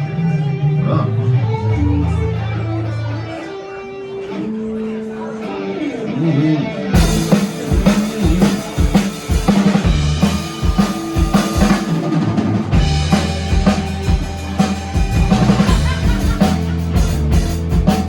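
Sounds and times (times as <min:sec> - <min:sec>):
bass line: 0:00.0 - 0:03.4, 0:07.0 - 0:18.0
guitar figure: 0:00.0 - 0:18.0
drum kit beat: 0:07.0 - 0:18.0.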